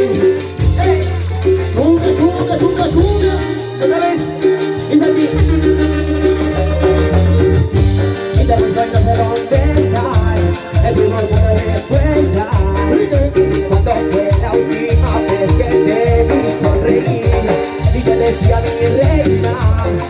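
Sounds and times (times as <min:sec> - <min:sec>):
latin dance band playing: 0:00.0 - 0:20.0.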